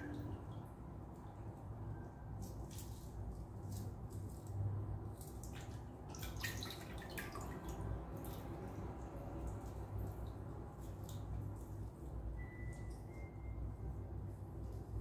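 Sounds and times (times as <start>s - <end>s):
steady low hum: 0.0s - 6.2s
wet squelches and drips: 0.0s - 13.6s.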